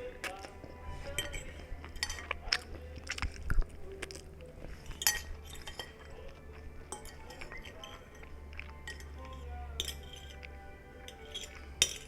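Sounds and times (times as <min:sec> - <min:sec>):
person chewing food: 0:00.0 - 0:12.0
light clink: 0:01.1 - 0:02.6, 0:04.9 - 0:06.2, 0:06.9 - 0:12.0.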